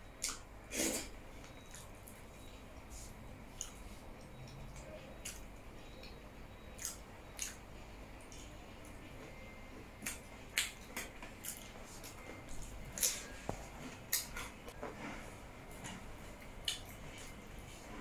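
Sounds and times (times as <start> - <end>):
faint room hum: 0.0 - 18.0
wet chewing mouth sounds: 0.2 - 7.6, 10.0 - 14.8, 15.7 - 17.4.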